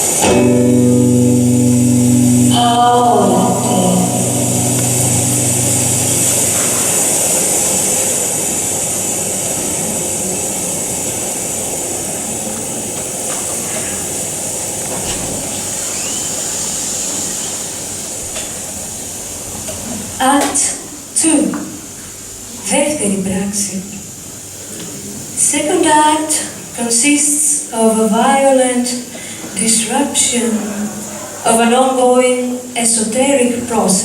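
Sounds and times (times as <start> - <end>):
bright rushing hiss: 0.0 - 20.2.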